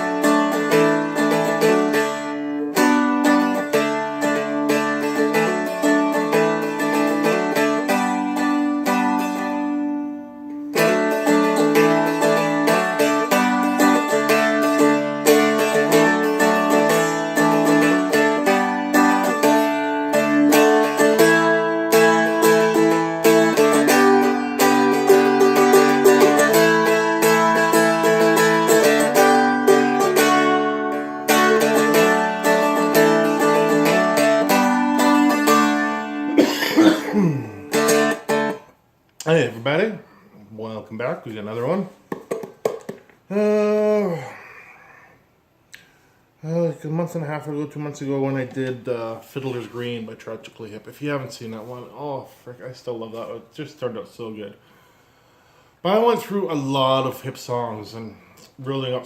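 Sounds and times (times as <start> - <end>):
strummed dulcimer chords: 0.0 - 10.0, 10.7 - 38.6.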